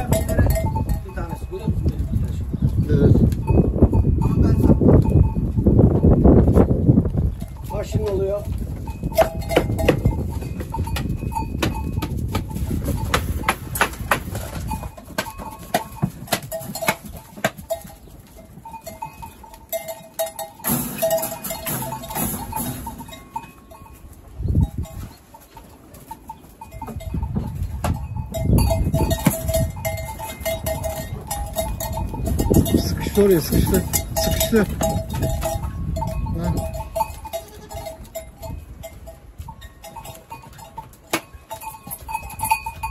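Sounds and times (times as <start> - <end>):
goat bells clanking: 0.0 - 42.9
goats bleating: 37.3 - 38.0.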